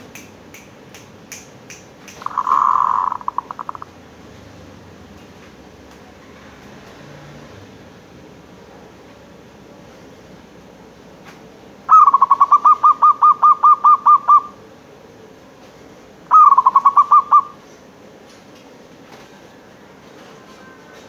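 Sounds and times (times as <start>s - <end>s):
dove cooing: 2.2s - 3.9s, 11.9s - 14.6s, 16.3s - 17.6s.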